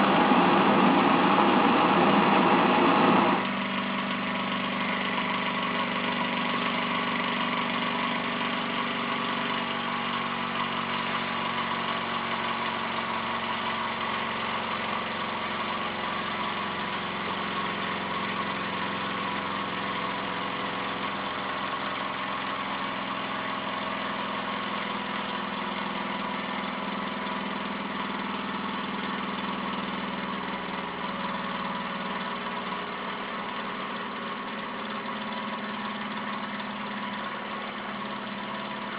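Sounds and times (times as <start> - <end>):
engine whirring hum: 0.0 - 3.7.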